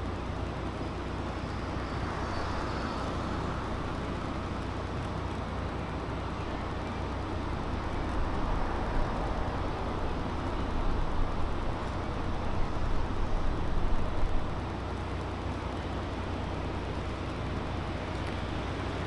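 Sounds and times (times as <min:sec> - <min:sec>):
low traffic rumble: 0:00.0 - 0:19.0.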